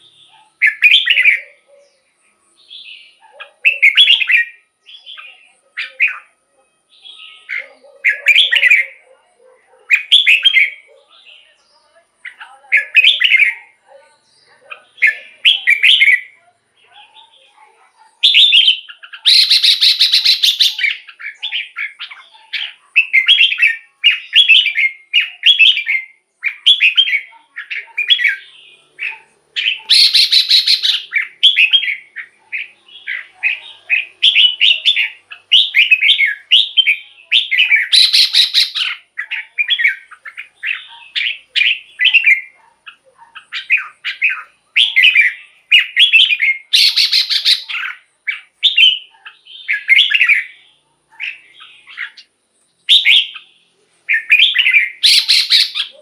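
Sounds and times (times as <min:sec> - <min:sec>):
bird singing bright phrases: 0:00.0 - 0:09.3, 0:09.9 - 0:56.0
harsh hissy bird call: 0:19.2 - 0:21.0, 0:29.8 - 0:31.2, 0:37.9 - 0:39.0.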